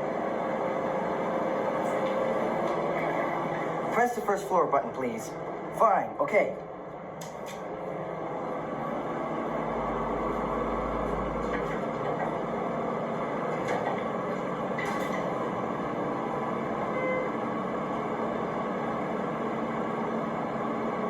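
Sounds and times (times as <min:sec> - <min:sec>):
elevator hum and rumble: 0:00.0 - 0:21.0
short beep: 0:16.9 - 0:17.4.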